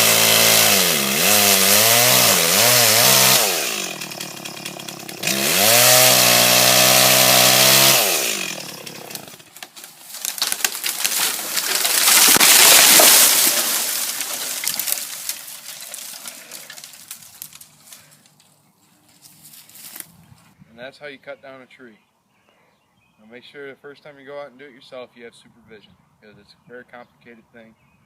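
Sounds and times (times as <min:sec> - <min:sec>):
chainsaw at full throttle: 0:00.0 - 0:09.6, 0:11.5 - 0:15.2
tree cracking and crashing down: 0:00.2 - 0:18.5.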